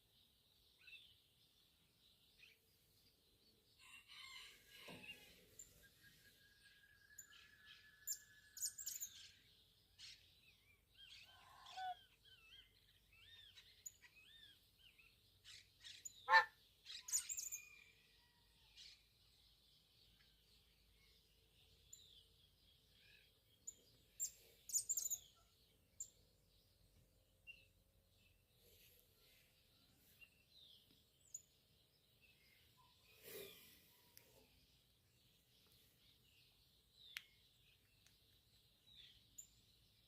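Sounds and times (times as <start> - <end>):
birds chirping and calling: 4.8 - 17.8, 21.8 - 26.2.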